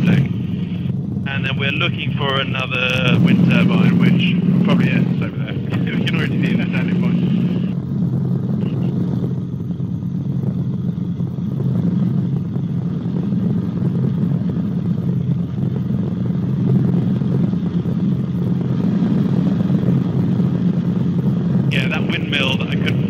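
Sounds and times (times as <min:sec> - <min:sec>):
helicopter engine and rotors droning: 0:00.0 - 0:23.0.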